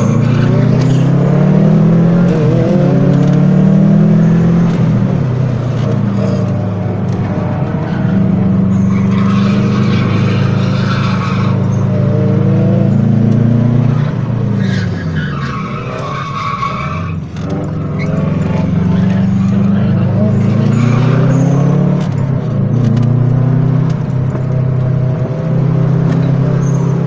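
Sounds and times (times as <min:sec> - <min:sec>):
car engine at high revs: 0:00.0 - 0:27.0
tyres squealing: 0:05.8 - 0:12.5, 0:13.9 - 0:21.9.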